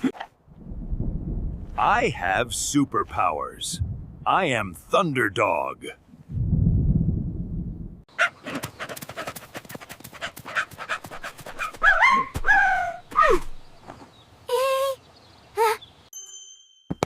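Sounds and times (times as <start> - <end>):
low rumble: 0.5 - 2.7, 3.5 - 4.6, 6.2 - 8.0
cartoon dog yelps: 11.8 - 13.5.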